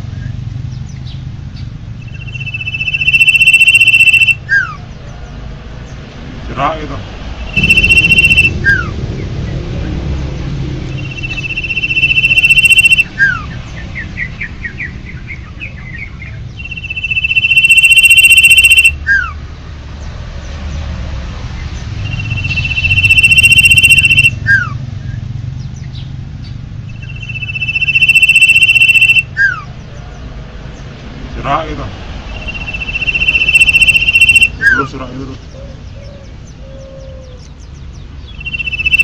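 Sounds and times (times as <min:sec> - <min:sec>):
bird short chirps: 0:02.0 - 0:04.7, 0:07.4 - 0:08.9, 0:10.9 - 0:14.8, 0:15.6 - 0:19.0, 0:22.0 - 0:24.7, 0:26.9 - 0:29.6, 0:32.3 - 0:34.8, 0:38.3 - 0:39.0
bird whistling notes: 0:02.0 - 0:04.8, 0:07.4 - 0:09.3, 0:10.9 - 0:19.3, 0:22.0 - 0:25.2, 0:26.8 - 0:29.7, 0:32.3 - 0:37.5, 0:38.2 - 0:39.0
low rumble: 0:04.8 - 0:17.4.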